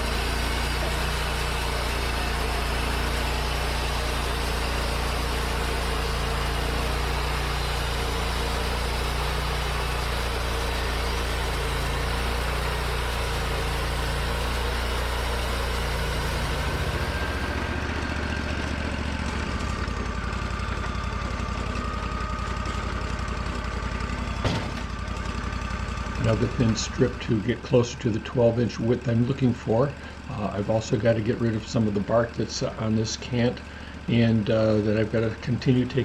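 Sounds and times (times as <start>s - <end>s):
band saw blade cutting wood: 0.0s - 20.0s, 24.4s - 25.0s
sawmill engine running: 0.0s - 36.0s.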